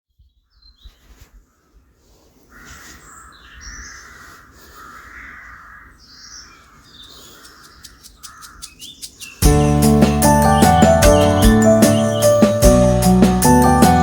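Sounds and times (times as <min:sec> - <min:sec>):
long harsh bird calls: 0:02.5 - 0:13.8
high bird chirps: 0:05.2 - 0:13.9.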